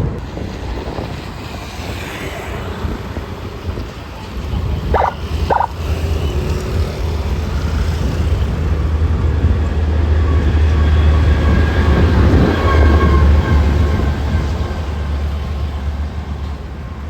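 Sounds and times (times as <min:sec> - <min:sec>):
short beeps: 0:04.9 - 0:05.7.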